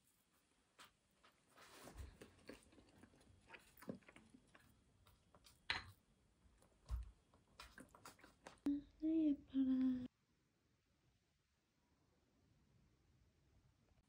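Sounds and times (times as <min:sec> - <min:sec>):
chewing cake: 0:01.9 - 0:05.7, 0:06.6 - 0:08.7.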